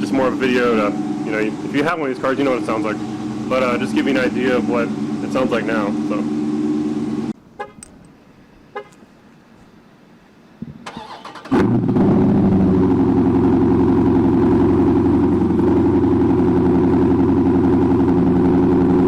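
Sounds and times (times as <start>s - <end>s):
car engine idling loudly: 0.0s - 7.3s, 11.9s - 19.0s.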